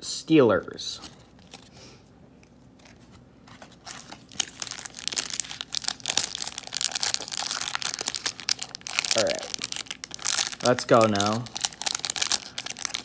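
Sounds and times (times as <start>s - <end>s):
card pack wrapper crinkling: 3.6s - 13.0s.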